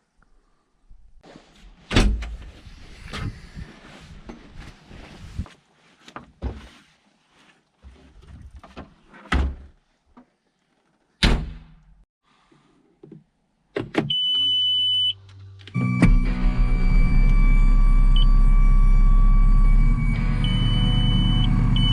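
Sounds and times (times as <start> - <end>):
skid steer engine running: 19.0 - 21.9.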